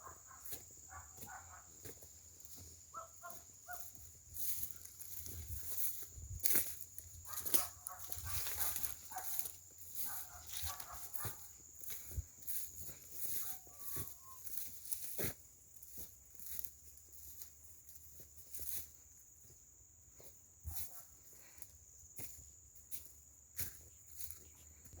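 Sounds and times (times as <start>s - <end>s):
high-pitched insect drone: 0.1s - 20.5s
faint animal calls: 12.5s - 15.2s.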